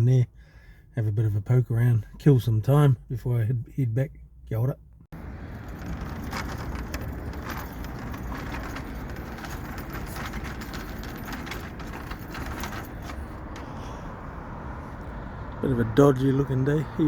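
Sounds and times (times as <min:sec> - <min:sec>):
passing traffic: 0:04.2 - 0:17.0
wind rumble: 0:05.2 - 0:16.0.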